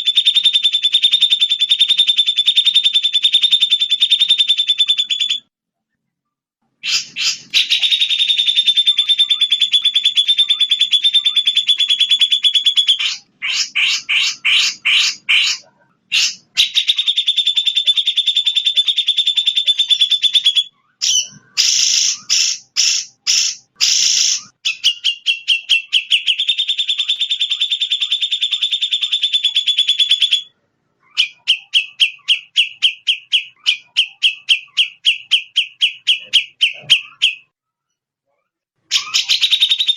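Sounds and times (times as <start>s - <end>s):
songbird trills and chirps: 6.9s - 37.5s.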